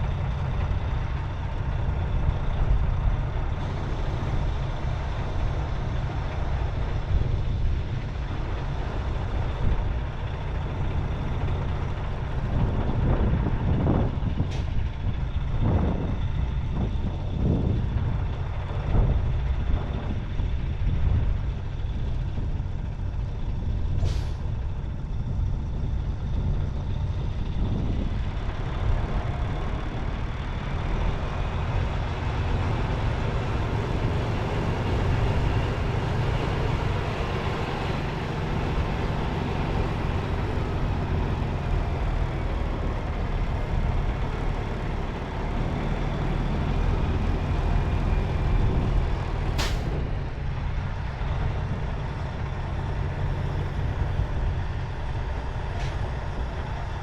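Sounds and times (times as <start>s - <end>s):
diesel truck engine running: 0.0s - 57.0s
air brake hisses: 24.0s - 24.4s, 49.6s - 50.0s.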